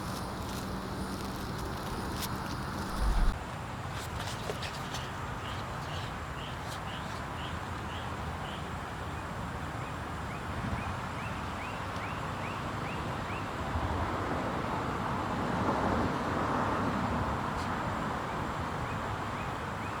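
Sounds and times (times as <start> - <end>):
bird chirping: 0.0 - 3.4
outdoor background noise: 0.0 - 20.0.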